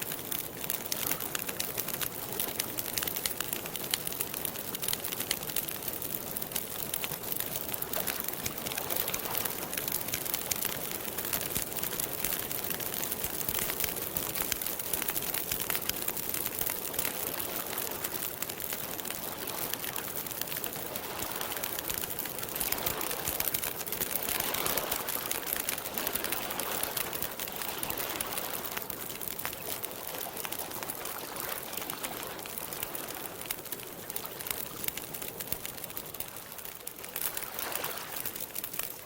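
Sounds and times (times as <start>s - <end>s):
campfire crackling: 0.0s - 39.0s
lake water lapping: 37.2s - 38.4s.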